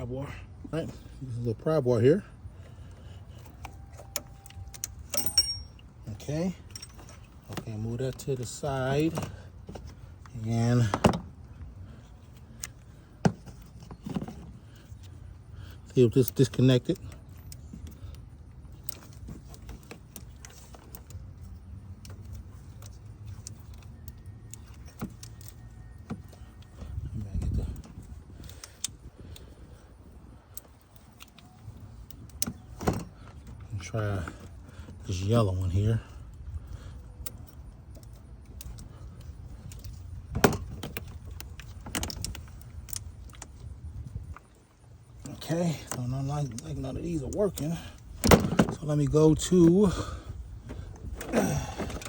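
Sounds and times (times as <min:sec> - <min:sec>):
hand tools clicking and clinking: 0:03.3 - 0:09.4
steady low rumble: 0:25.8 - 0:52.0.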